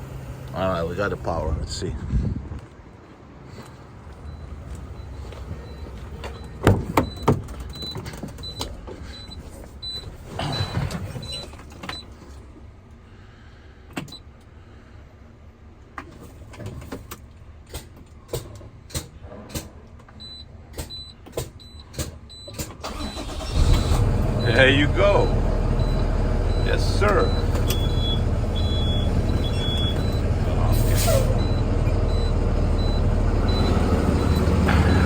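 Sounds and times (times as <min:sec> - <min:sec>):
dashboard warning beeps: 0:03.7 - 0:12.1, 0:20.2 - 0:35.0.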